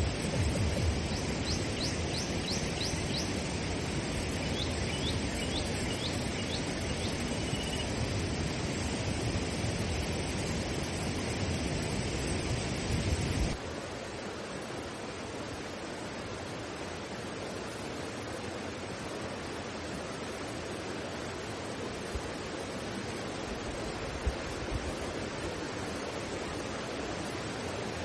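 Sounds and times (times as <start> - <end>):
rushing water: 0.0 - 28.0
small bird calling: 1.0 - 7.9.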